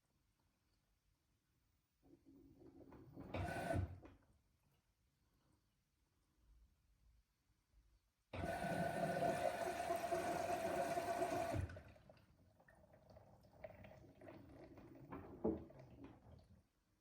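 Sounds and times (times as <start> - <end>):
rush of water into washing machine: 8.4 - 12.0.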